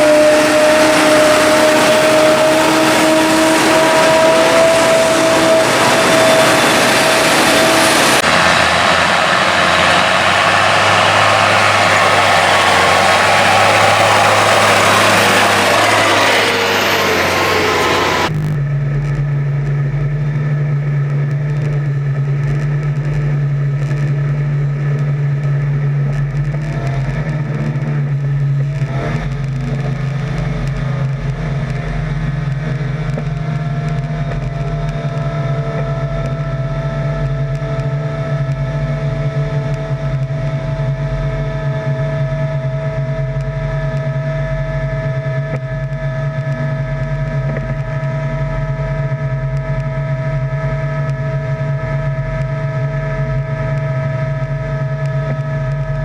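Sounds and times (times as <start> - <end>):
high machine whines: 0.0 - 18.9
diesel farm machinery droning: 0.0 - 56.0.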